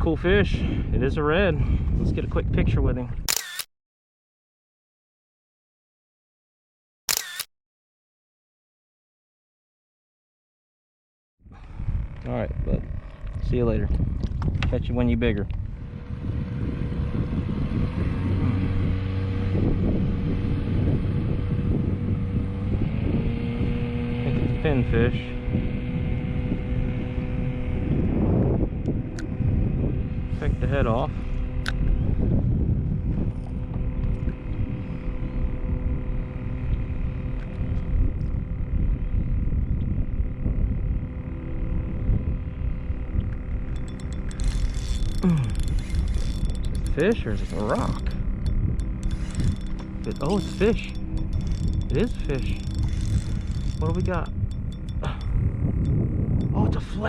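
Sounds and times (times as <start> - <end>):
wind noise on microphone: 0.0 - 3.4, 11.4 - 57.0
low motor hum: 11.4 - 57.0.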